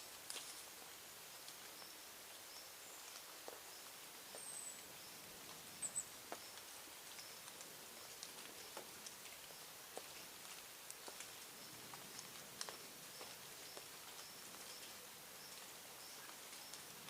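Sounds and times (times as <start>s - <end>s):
faint background hiss: 0.0s - 17.0s.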